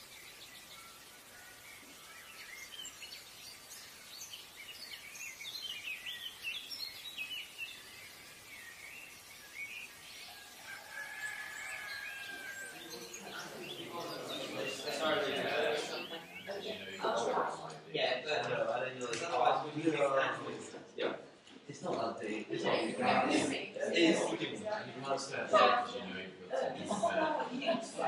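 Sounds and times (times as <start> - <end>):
faint hiss: 0.0 - 17.0
small birds chirping: 0.0 - 17.5.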